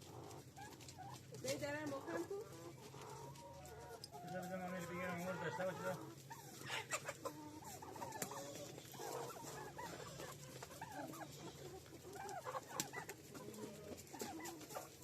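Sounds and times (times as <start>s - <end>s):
small clicks and rustles: 0.0s - 2.0s
chickens clucking: 0.0s - 15.0s.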